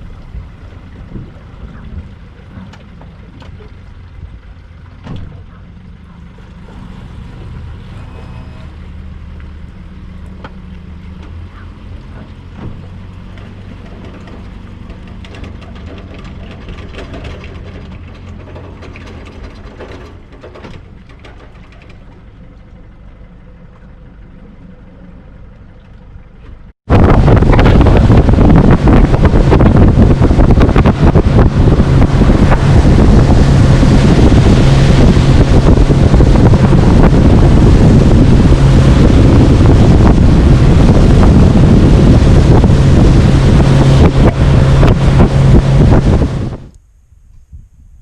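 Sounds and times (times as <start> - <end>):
outboard motor humming: 0.0 - 46.8
loud rush of noise: 26.9 - 46.7.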